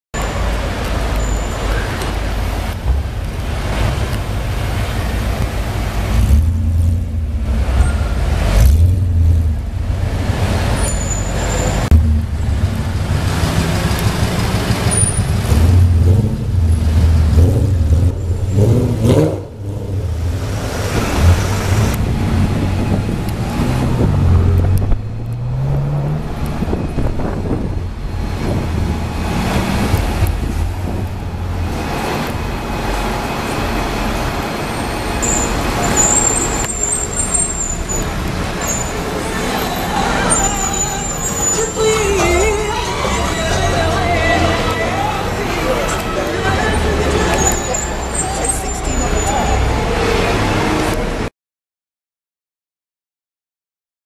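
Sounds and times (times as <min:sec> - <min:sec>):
city traffic: 0:00.1 - 0:51.3
car engine revving: 0:02.9 - 0:32.6.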